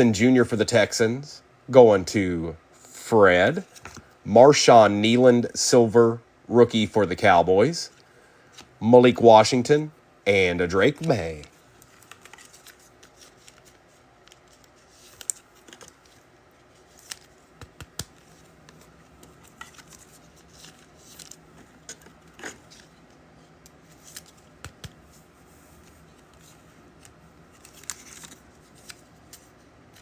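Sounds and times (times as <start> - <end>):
trading cards clicking and tapping: 17.1 - 20.0, 24.6 - 25.0.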